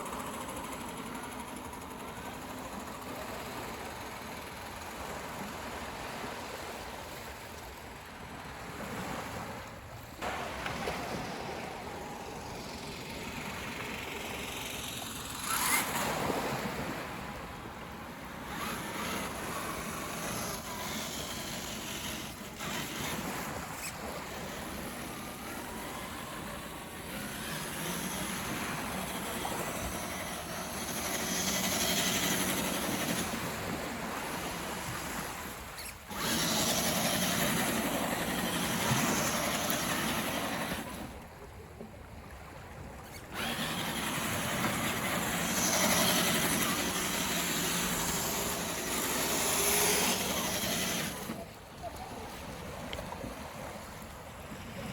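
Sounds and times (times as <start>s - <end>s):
waves washing on a beach: 0.0s - 54.9s
electric motor whine: 10.2s - 41.2s, 43.0s - 51.6s.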